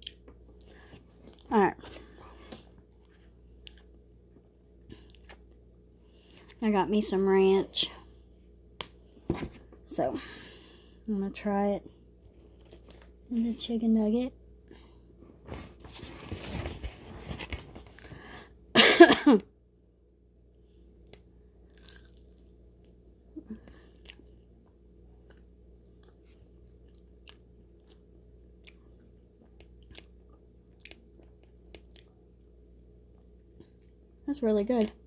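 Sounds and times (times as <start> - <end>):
person chewing crunchy food: 21.1 - 23.1, 23.7 - 32.5.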